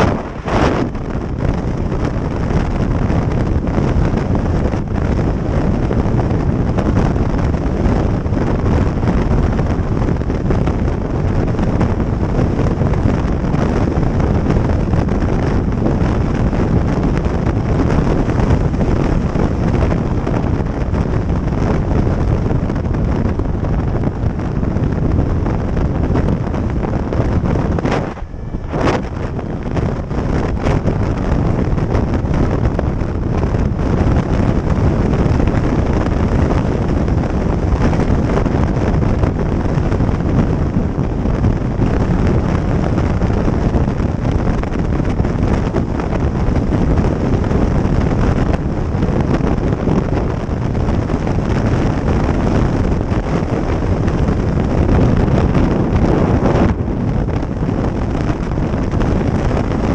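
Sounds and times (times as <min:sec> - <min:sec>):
motorcycle engine and road noise: 0:00.0 - 0:59.9
wind noise on microphone: 0:00.0 - 0:59.9.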